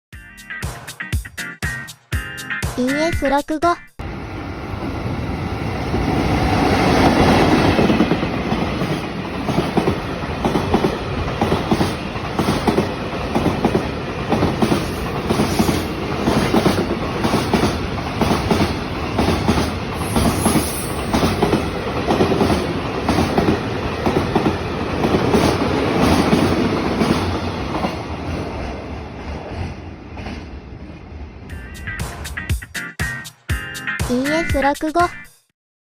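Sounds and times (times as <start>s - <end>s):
train wheels clattering on rails: 6.0s - 30.5s.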